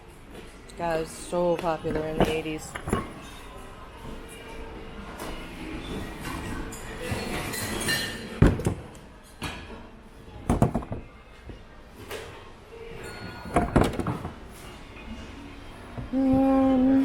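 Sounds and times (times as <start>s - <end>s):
hard objects knocking together: 10.5s - 11.1s.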